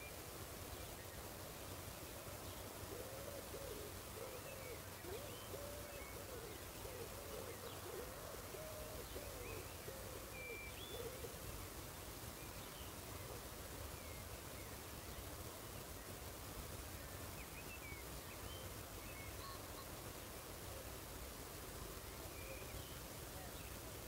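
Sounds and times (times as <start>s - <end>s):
bird hooting: 2.9s - 11.4s.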